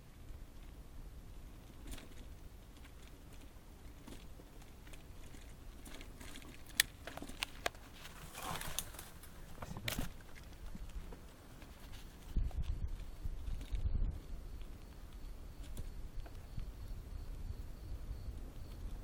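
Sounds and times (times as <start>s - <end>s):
leaves rustling against microphone: 0.0s - 19.0s.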